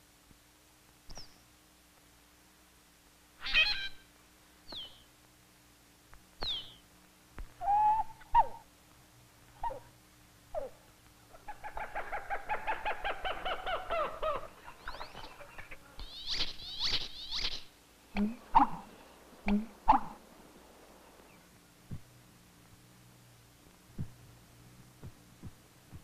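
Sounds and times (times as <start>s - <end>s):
birds calling: 3.4s - 5.2s, 6.3s - 8.8s, 9.5s - 22.2s.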